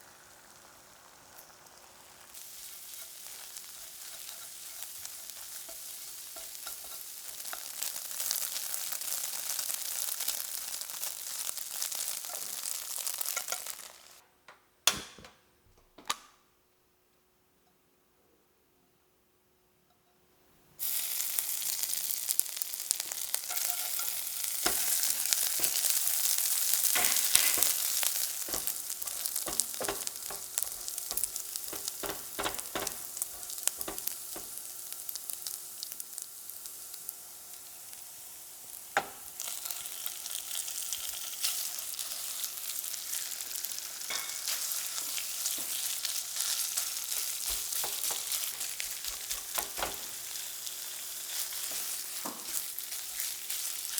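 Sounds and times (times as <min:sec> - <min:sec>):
food sizzling in frying pan: 0:00.0 - 0:14.2, 0:20.8 - 0:53.9
utensil knocking against pan: 0:24.6 - 0:26.0, 0:27.0 - 0:34.6, 0:47.5 - 0:50.2.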